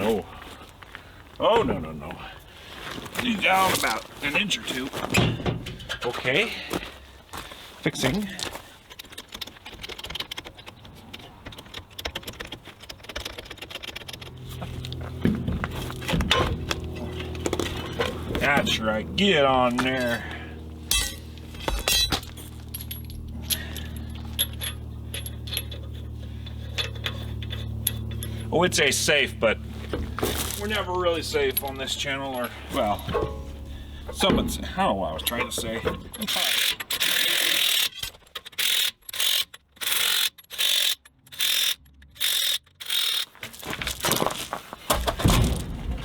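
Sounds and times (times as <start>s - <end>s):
steady low hum: 0.0s - 37.9s
metal clattering: 4.9s - 6.8s, 8.0s - 28.6s, 29.8s - 38.6s, 43.3s - 46.0s
power wrench running lug nuts: 8.1s - 46.0s
metallic clinks of tools: 20.9s - 28.5s
heavy knocks: 44.9s - 46.0s.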